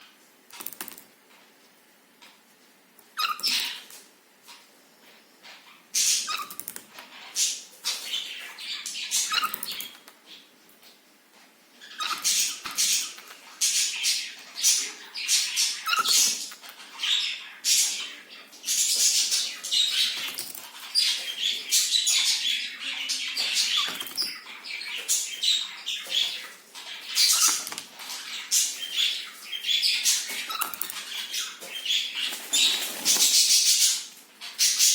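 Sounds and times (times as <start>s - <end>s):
bird scratching and rustling: 26.0s - 34.0s.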